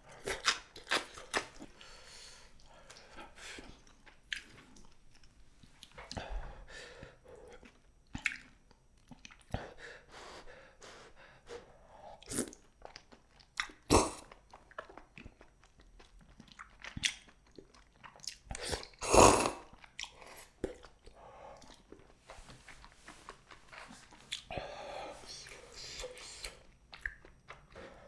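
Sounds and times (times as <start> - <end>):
chewing and biting food: 0.0 - 6.4, 7.5 - 9.8, 11.5 - 28.0
wet mouth clicks: 2.9 - 5.0, 7.6 - 9.7, 12.2 - 21.0, 21.6 - 24.8, 25.4 - 27.8.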